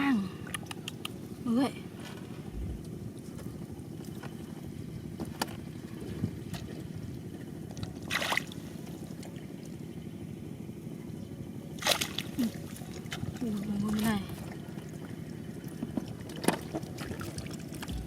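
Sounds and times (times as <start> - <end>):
steady low rumble: 0.0 - 18.0
water sloshing: 0.3 - 9.8, 11.8 - 18.0
water splash: 8.0 - 8.7, 11.8 - 13.2.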